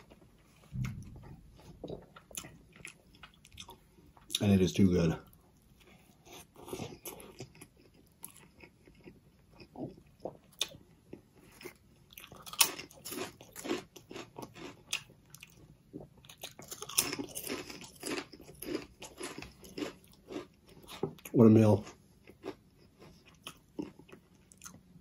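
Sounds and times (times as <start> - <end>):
biting and chewing sandwich: 11.4 - 24.9
potato chips crunching: 11.6 - 15.6, 16.3 - 24.8.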